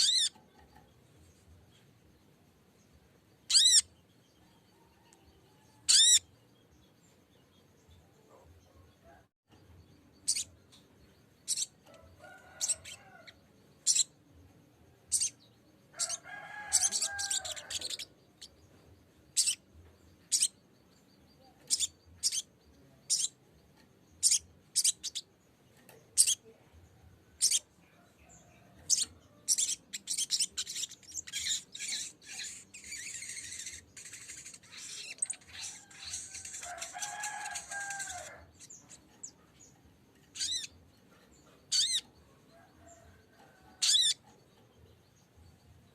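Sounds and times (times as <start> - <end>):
bird chattering phrases: 0.0 - 0.6, 41.7 - 42.1.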